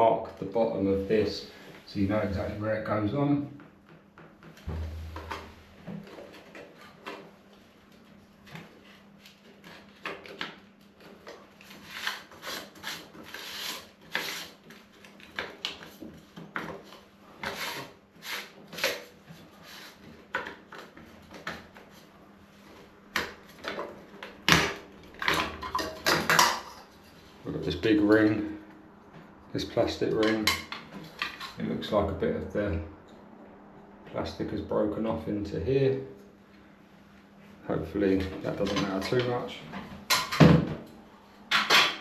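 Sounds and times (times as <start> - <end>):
loud knock: 4.7 - 5.5.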